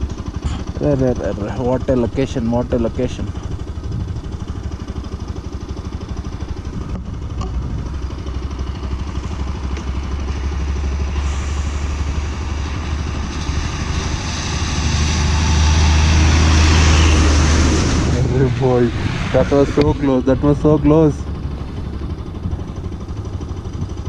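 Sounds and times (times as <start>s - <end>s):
motorcycle engine running: 0.0s - 24.0s
road noise: 0.0s - 24.0s
wind rushing: 13.6s - 20.9s.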